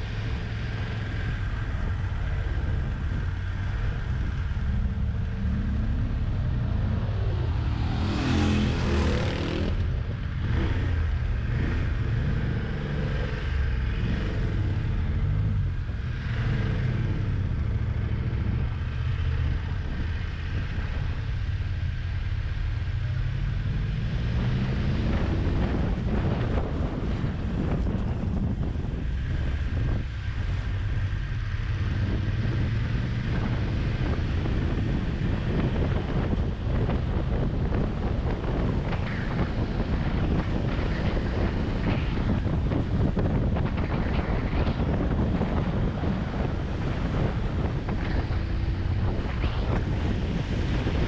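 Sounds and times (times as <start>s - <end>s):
wind rushing over microphone: 0.0s - 51.0s
motorcycle engine running: 24.7s - 51.0s.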